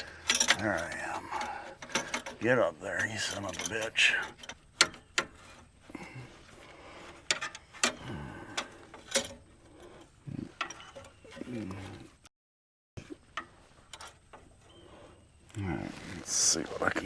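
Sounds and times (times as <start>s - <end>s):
metal clicks and knocks: 0.0s - 5.8s, 7.1s - 11.5s.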